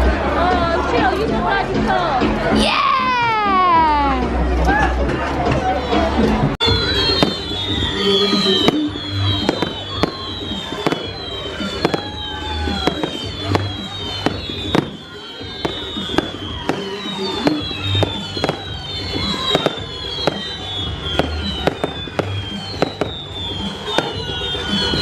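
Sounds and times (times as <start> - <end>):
fireworks bangs and cracks: 6.6 - 25.0.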